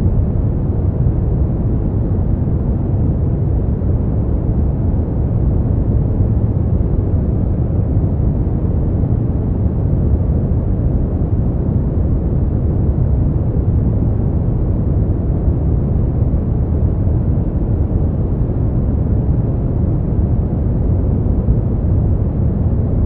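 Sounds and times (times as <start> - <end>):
deep rumbling brown noise: 0.0 - 23.0.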